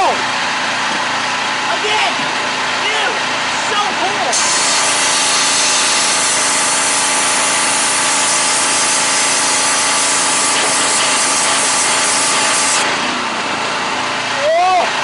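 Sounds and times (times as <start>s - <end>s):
pressure washer engine humming: 0.0s - 15.0s
pressure washer water jet hissing: 4.3s - 14.0s.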